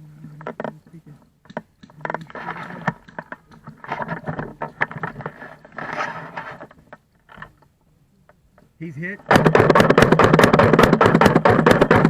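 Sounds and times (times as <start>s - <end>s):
clicks and knocks: 1.4s - 5.4s
gear rustling and scraping: 2.0s - 7.5s.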